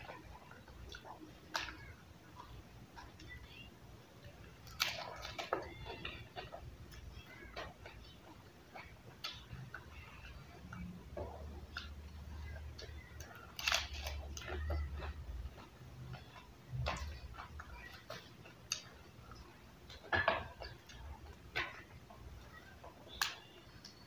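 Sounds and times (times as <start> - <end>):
lettuce crunching being chewed: 7.8 - 19.4.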